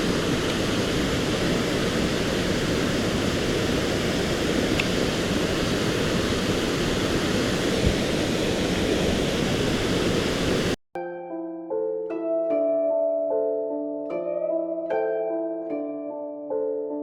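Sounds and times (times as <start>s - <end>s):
stream water flowing: 0.0s - 10.8s
plucked harp-like music: 11.0s - 17.0s.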